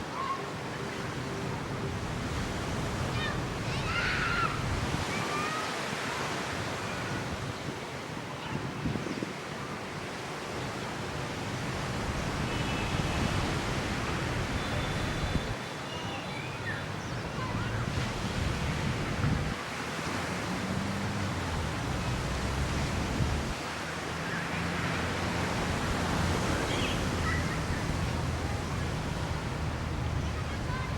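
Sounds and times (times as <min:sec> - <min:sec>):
ocean surf washing onto beach: 0:00.0 - 0:30.9
wind buffeting microphone: 0:02.0 - 0:05.2, 0:08.5 - 0:09.4, 0:16.8 - 0:23.8.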